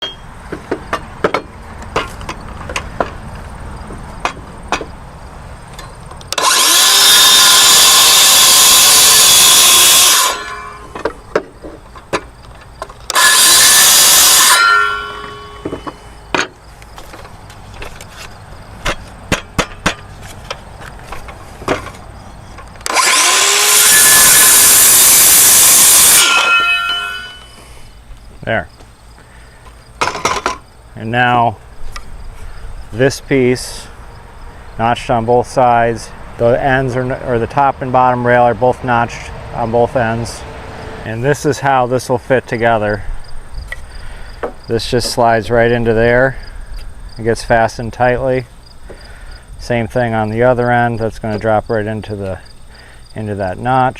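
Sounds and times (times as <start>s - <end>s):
wood knocking and clattering: 0.0s - 3.2s, 15.6s - 22.7s, 30.0s - 30.7s
power saw cutting wood: 6.3s - 11.3s, 13.1s - 16.2s, 22.8s - 27.8s.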